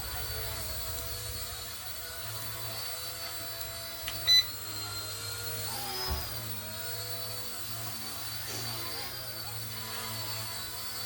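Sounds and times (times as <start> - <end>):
rc helicopter whine: 0.0 - 11.0
loud electronic beep: 4.2 - 4.5.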